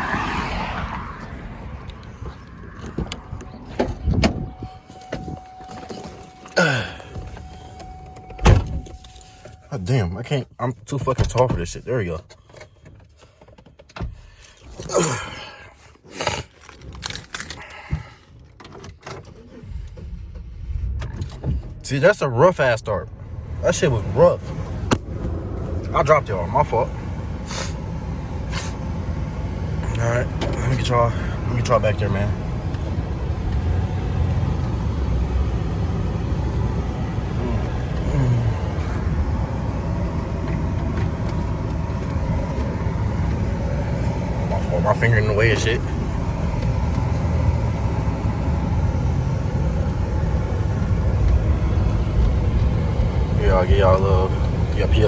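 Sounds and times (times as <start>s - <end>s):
car engine starting roughly: 0.0s - 10.0s, 16.2s - 55.0s
keys jangling: 16.2s - 17.8s.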